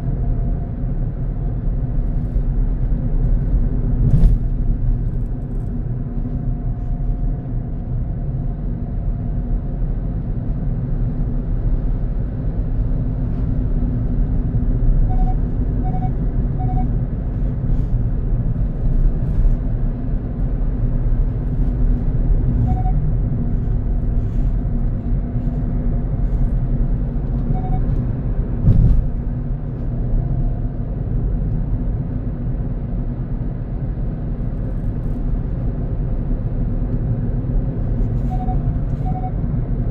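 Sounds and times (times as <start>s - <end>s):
car engine and tyre rumble: 0.0s - 39.9s
faint short beeps: 15.0s - 17.0s, 22.6s - 23.1s, 27.4s - 28.0s, 38.2s - 39.5s
thump: 28.6s - 29.2s.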